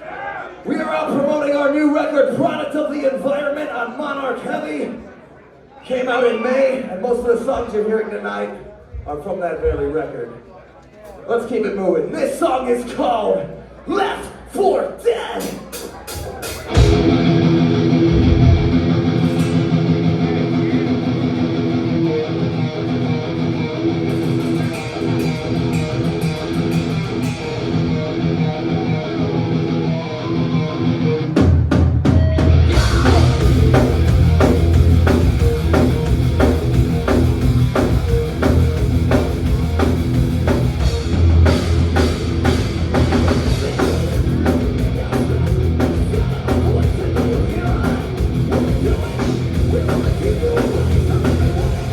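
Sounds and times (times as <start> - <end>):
thrash metal band playing: 15.4 - 51.9
distorted electric guitar riff: 16.4 - 51.9.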